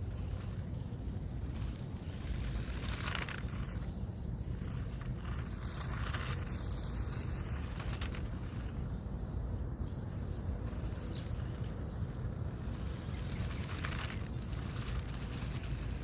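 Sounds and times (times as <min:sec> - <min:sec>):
hissing tyre scrabble: 0:10.4 - 0:16.0.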